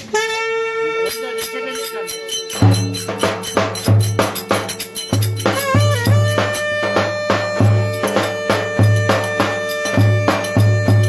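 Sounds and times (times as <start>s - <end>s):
long held note: 0.0s - 11.0s
quick clicking percussion: 1.0s - 11.0s
heavy bass drum beat: 2.6s - 11.0s.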